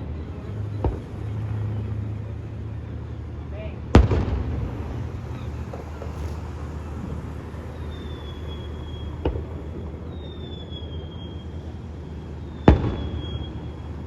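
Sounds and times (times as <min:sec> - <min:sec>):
firework bang: 0:03.9 - 0:06.7, 0:07.5 - 0:11.1, 0:12.6 - 0:14.0
firework whistle: 0:04.4 - 0:14.0.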